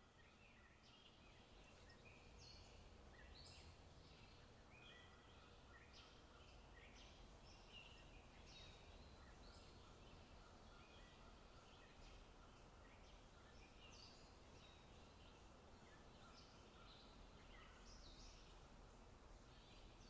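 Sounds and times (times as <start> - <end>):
small birds chirping and trilling: 0.0 - 20.0.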